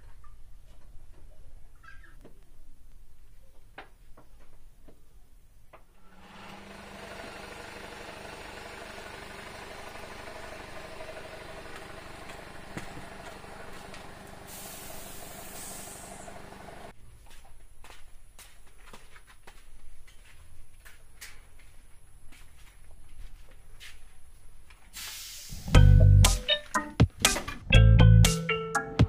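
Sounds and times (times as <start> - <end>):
car engine idling: 6.0 - 16.9
brief high hiss: 14.5 - 16.2, 25.0 - 25.7.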